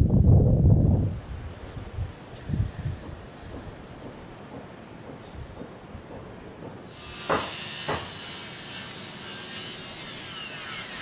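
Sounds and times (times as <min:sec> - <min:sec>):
loud hiss: 0:02.2 - 0:04.1, 0:06.9 - 0:11.0
sharp knocks: 0:03.1 - 0:08.3.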